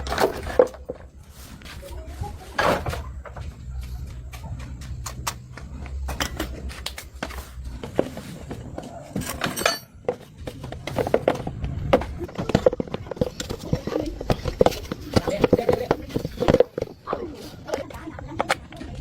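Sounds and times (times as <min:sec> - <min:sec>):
metallic clinks and knocks: 0:09.1 - 0:10.3.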